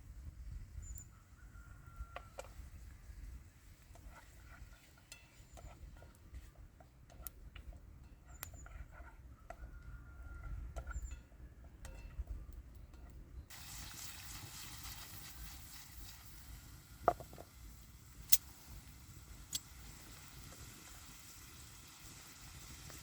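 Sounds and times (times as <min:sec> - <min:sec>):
food sizzling in a pan: 0:13.5 - 0:23.0.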